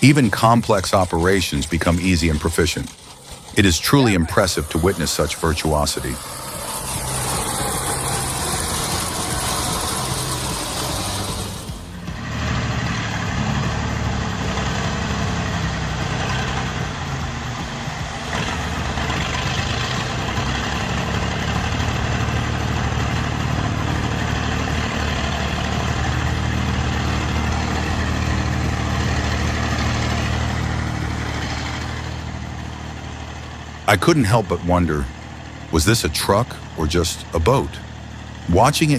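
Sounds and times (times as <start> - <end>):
heavy vehicle engine droning: 0.0 - 38.9.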